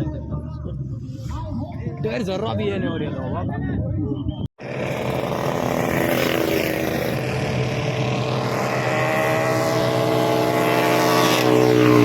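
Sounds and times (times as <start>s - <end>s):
engine running at high revs: 4.6s - 12.0s.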